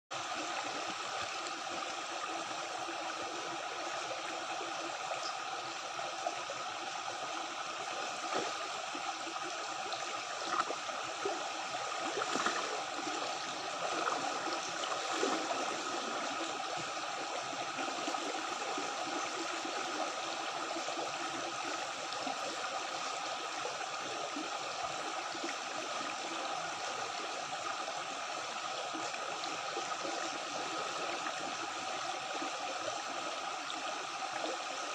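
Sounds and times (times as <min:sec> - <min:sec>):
stream water gurgling: 0:00.1 - 0:34.9
water splashes: 0:07.9 - 0:20.1.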